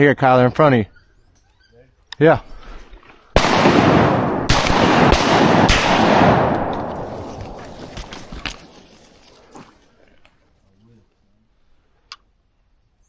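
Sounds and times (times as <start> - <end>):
shotgun shots with echo: 3.4 - 7.5.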